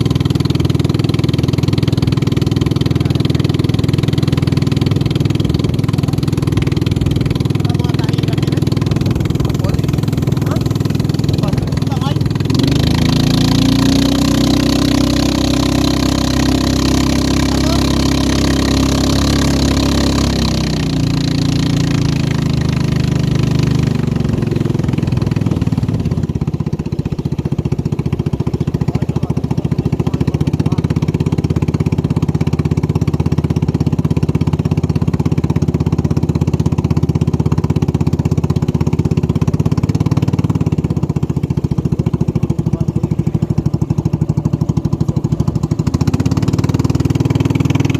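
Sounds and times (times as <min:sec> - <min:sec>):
racing boat engine: 0:00.0 - 0:47.9.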